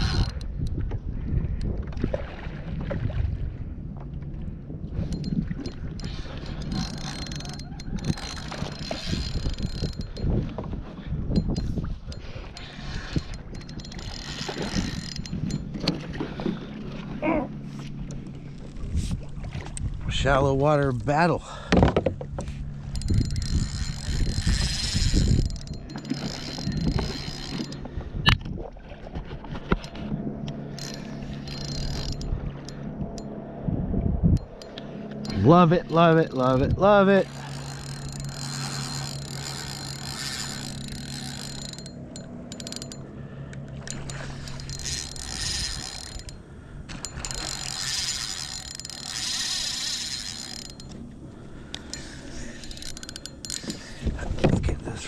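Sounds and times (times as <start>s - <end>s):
fishing reel clicks: 0.0s - 0.7s, 5.1s - 10.4s, 11.3s - 15.9s, 22.8s - 27.9s, 30.7s - 33.3s, 34.3s - 54.1s
fishing reel whirring: 0.0s - 0.7s, 4.9s - 19.2s, 22.4s - 28.3s, 29.4s - 54.2s.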